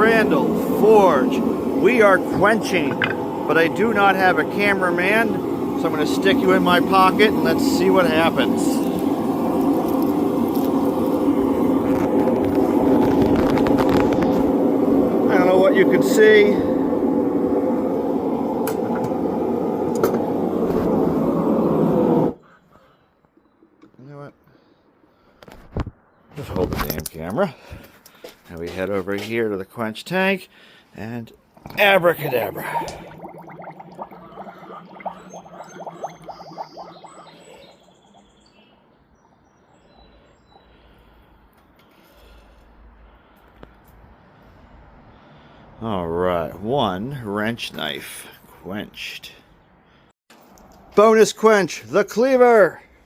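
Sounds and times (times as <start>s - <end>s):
hot steel sizzling in water: 0.0s - 22.4s, 31.6s - 38.4s
muffled forge roar: 0.0s - 22.4s.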